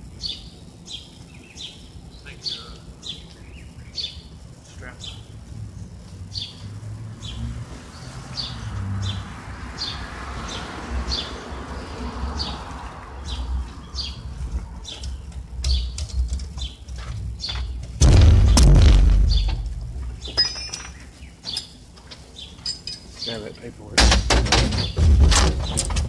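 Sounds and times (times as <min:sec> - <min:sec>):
bird chirping: 0:00.0 - 0:17.9, 0:19.1 - 0:23.7
steady low rumble: 0:12.5 - 0:20.4.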